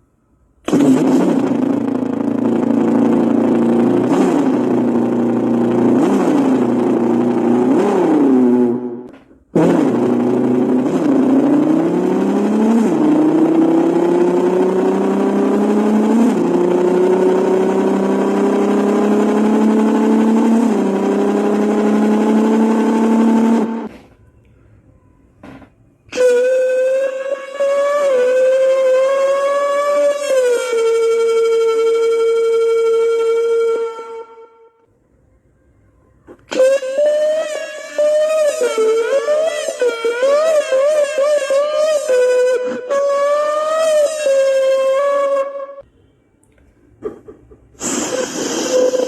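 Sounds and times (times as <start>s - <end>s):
person imitating an engine: 0.6s - 23.9s, 46.9s - 49.0s.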